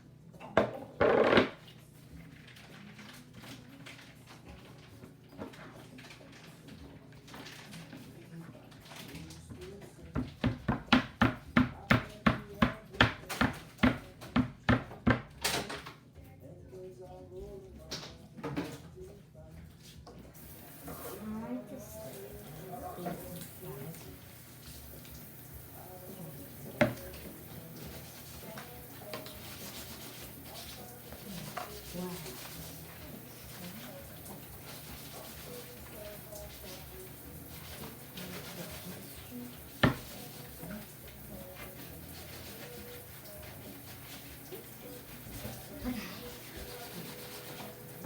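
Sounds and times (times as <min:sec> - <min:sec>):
rubbing and handling noise: 0:22.0 - 0:48.0.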